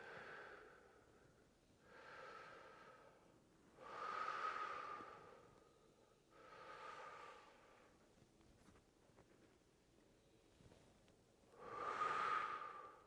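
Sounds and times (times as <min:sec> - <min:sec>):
person breathing slowly: 0:00.0 - 0:08.0, 0:11.5 - 0:13.0.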